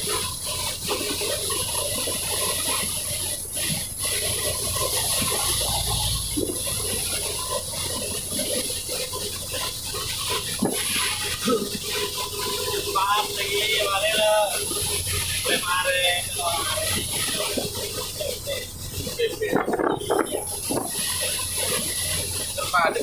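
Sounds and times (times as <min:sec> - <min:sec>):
heavy rain: 0:00.0 - 0:23.0.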